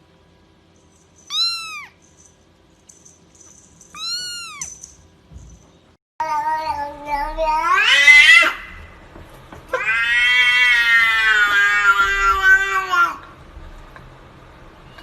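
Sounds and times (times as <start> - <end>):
cat meowing: 1.3 - 2.0, 3.9 - 4.8, 6.2 - 8.8, 9.7 - 13.2.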